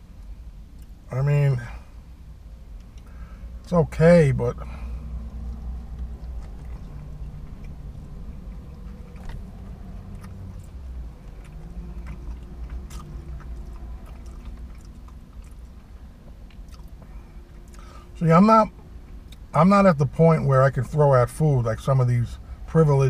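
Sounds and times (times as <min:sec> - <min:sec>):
low hum: 0:00.0 - 0:21.8
man chewing food: 0:05.0 - 0:18.0.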